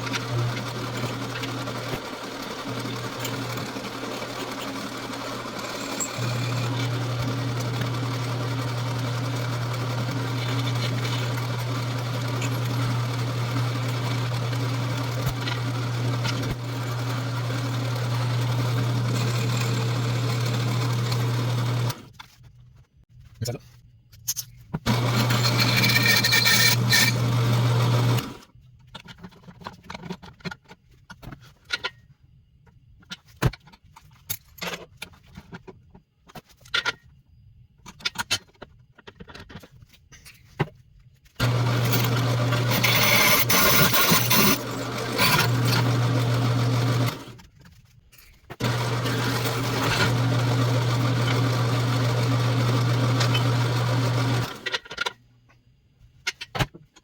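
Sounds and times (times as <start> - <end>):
electric power tool humming: 0.0 - 22.0, 24.9 - 28.3, 41.4 - 47.3, 48.6 - 54.6
metal parts and hand tools clicking: 41.8 - 45.9.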